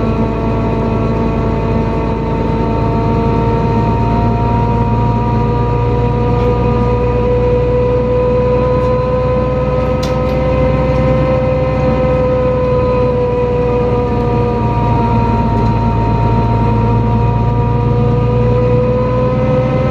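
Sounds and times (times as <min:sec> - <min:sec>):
bus engine rumble with whine: 0:00.0 - 0:19.9.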